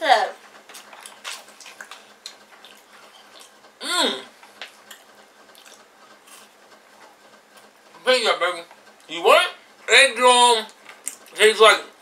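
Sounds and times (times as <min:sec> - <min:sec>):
person chewing: 0:00.7 - 0:06.6
person humming mm: 0:03.8 - 0:04.3.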